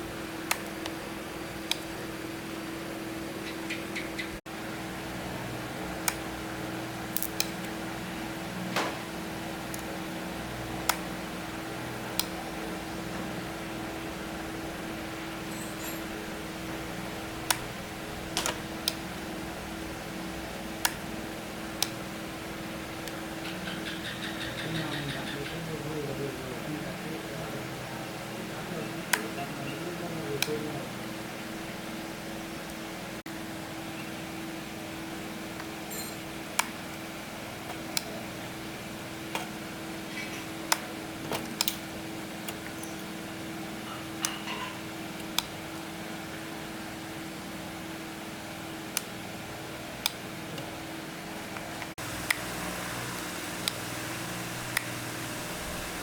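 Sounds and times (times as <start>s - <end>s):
steady hum: 0.0s - 56.0s
small tools clicking and tapping: 7.1s - 7.8s, 15.5s - 16.2s, 18.3s - 19.0s, 42.5s - 43.1s, 43.9s - 45.6s.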